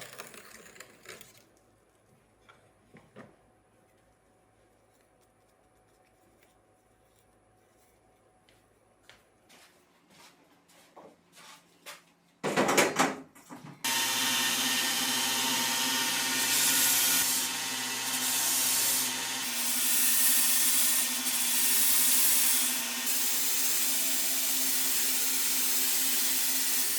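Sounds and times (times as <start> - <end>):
electric sander running: 13.9 - 26.9.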